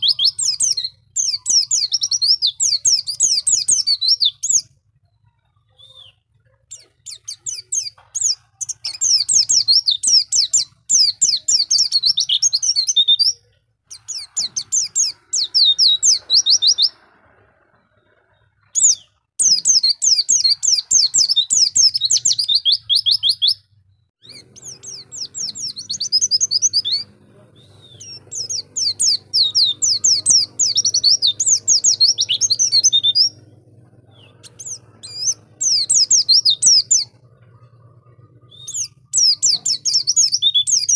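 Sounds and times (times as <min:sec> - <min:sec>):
bird twittering: 0:00.0 - 0:40.9
faint low hum: 0:23.7 - 0:40.7.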